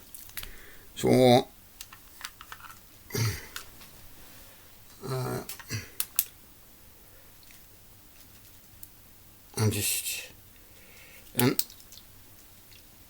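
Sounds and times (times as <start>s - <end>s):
man humming or mumbling: 3.1s - 3.6s, 4.9s - 6.0s.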